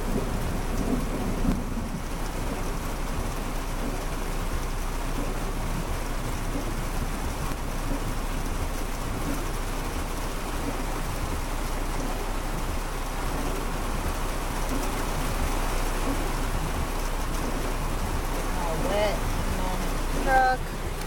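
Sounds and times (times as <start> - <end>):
heavy rain on a car: 0.0 - 21.0.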